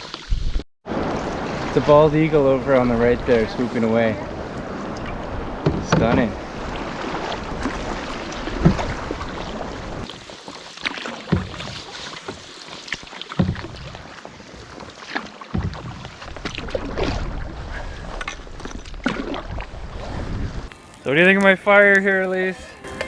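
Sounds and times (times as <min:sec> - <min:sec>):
water sloshing along hull: 0:00.0 - 0:23.0
paddle strokes splashing: 0:04.3 - 0:18.3, 0:20.7 - 0:23.0.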